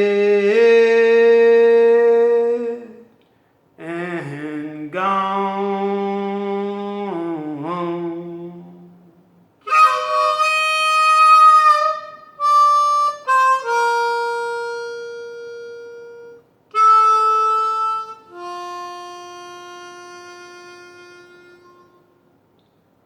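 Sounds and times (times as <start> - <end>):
harmonica playing blues: 9.6 - 22.3.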